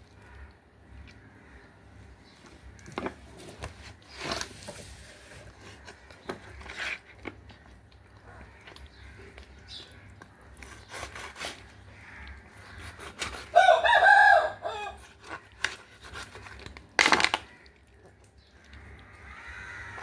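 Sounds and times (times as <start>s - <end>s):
rooster crowing: 13.5s - 15.0s.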